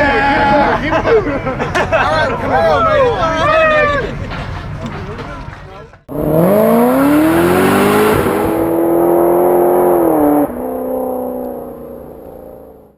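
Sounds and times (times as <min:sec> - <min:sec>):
car engine revving: 0:00.0 - 0:12.9.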